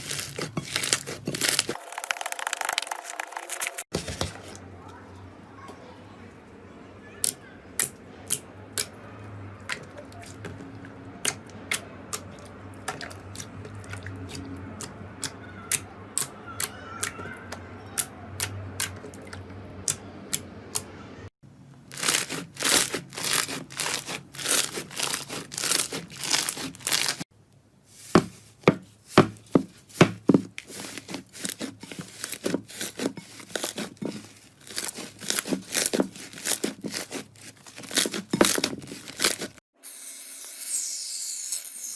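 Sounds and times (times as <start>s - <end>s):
slime pressed and stretched by hand: 22.0s - 27.2s, 28.1s - 39.5s.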